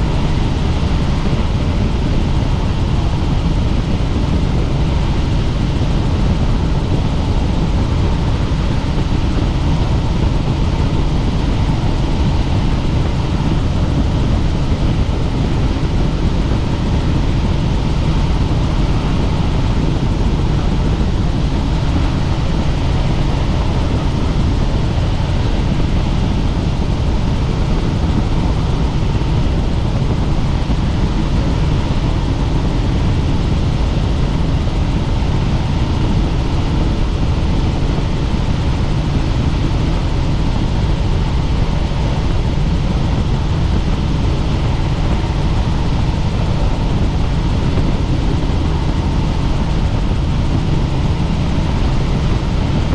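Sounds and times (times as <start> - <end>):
faint steady whine: 0.0 - 52.9
helicopter rotor and engine: 0.0 - 52.9.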